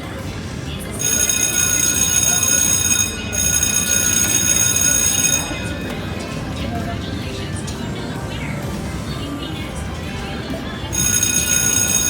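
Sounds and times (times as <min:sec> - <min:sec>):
casino background noise: 0:00.0 - 0:12.0
slot machine high tones: 0:00.9 - 0:08.4, 0:10.9 - 0:12.0.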